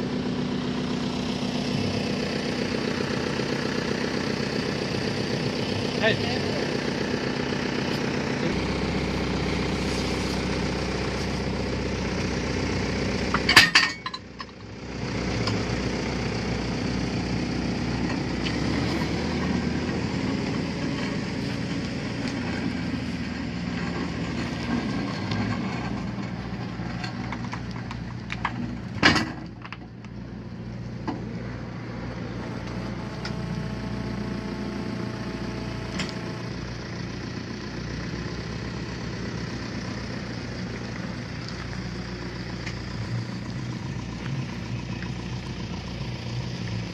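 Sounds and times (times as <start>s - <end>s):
machine engine running: 0.0s - 13.5s, 30.6s - 46.9s.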